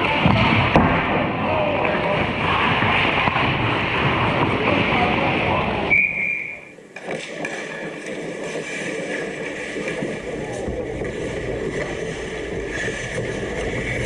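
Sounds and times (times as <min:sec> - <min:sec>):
voices: 0:00.0 - 0:13.3
referee whistle blast: 0:05.9 - 0:06.8.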